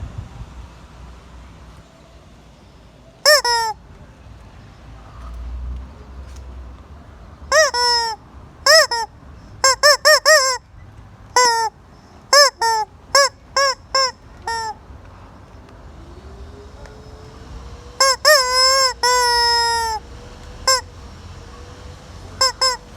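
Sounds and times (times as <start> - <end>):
hen calling: 3.2 - 3.8, 7.5 - 10.6, 11.4 - 14.8, 18.0 - 20.0, 20.7 - 20.9, 22.4 - 22.9.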